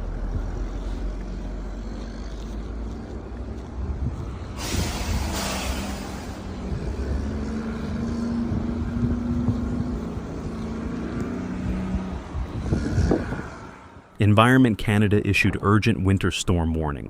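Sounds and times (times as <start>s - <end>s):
vehicle engine running: 0.0s - 4.5s.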